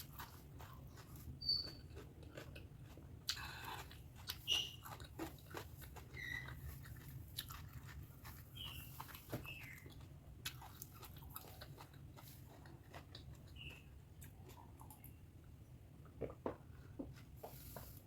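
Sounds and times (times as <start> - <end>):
close chewing mouth sounds: 0.0 - 15.2
squeaky mouth smacks: 1.4 - 1.9, 4.4 - 4.8.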